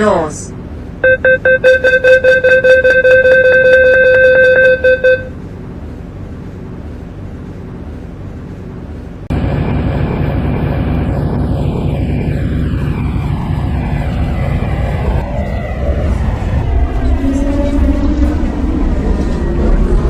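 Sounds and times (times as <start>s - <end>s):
loud rapidly pulsing door beep: 1.0s - 5.3s.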